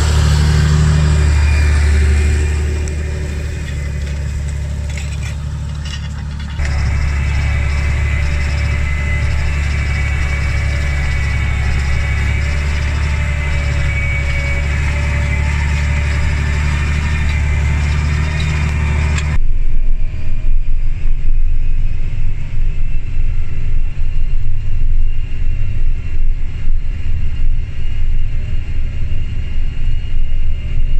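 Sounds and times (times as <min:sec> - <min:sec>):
tractor diesel engine running: 0:00.0 - 0:19.4.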